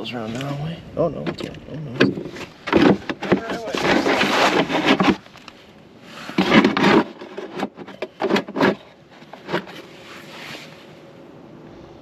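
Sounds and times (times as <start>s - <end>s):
rubbing and scraping handling noises: 2.0s - 11.1s.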